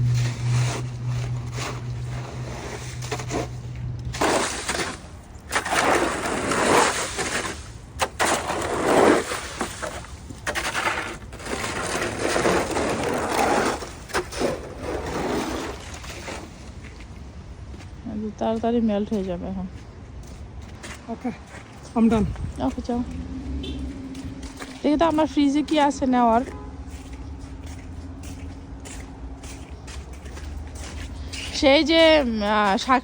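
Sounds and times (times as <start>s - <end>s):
snow shovel scraping wet snow: 0.0s - 17.0s
engine hum: 0.0s - 18.4s, 19.9s - 33.0s.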